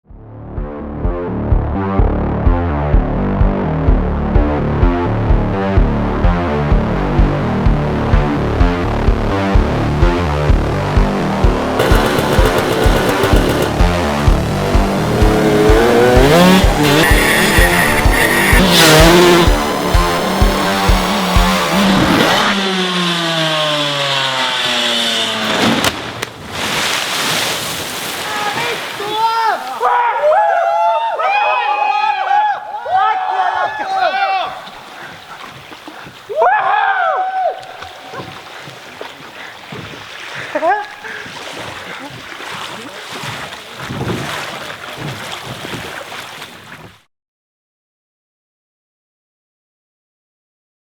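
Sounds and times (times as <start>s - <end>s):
motocross bike engine buzzing: 11.6s - 25.6s
burst of noise: 11.8s - 14.8s
water: 26.0s - 30.5s, 32.7s - 47.1s.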